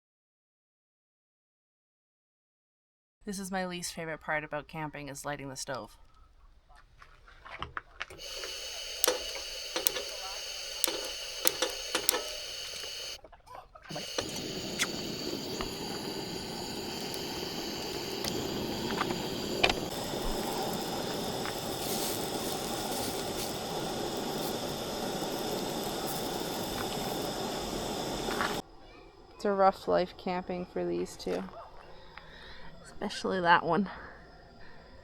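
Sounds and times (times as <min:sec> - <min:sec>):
gas stove burner hissing: 0:08.1 - 0:13.2, 0:13.9 - 0:28.6.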